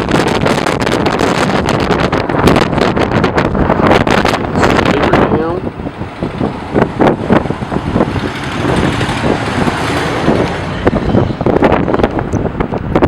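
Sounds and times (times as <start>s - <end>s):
road vehicle passing: 3.9s - 13.0s.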